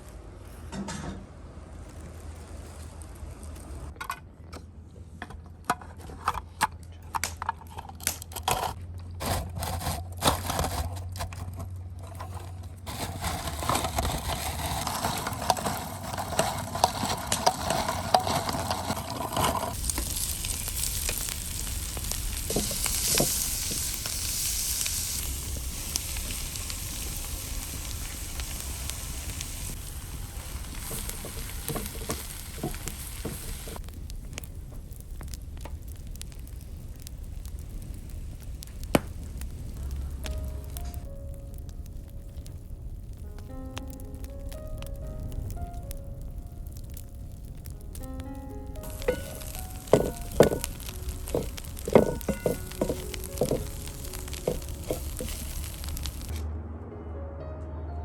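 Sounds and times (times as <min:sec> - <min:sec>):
stirring in a pan: 0:12.0 - 0:25.2, 0:29.4 - 0:33.8, 0:48.8 - 0:56.3
food sizzling in a pan: 0:14.2 - 0:33.8, 0:48.8 - 0:56.4.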